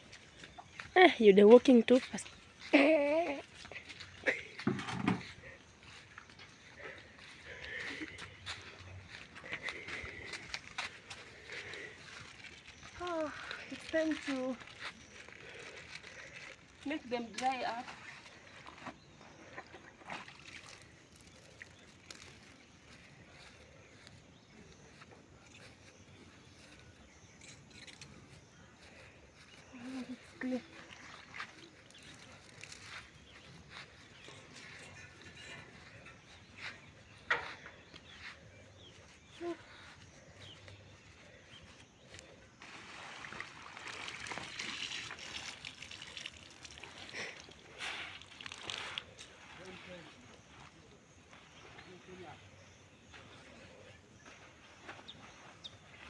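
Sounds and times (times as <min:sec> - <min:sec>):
water trickling and splashing: 0:05.2 - 0:25.8, 0:28.9 - 0:35.9, 0:42.1 - 0:51.0
water sloshing in a basin: 0:17.4 - 0:22.6, 0:42.6 - 0:50.7.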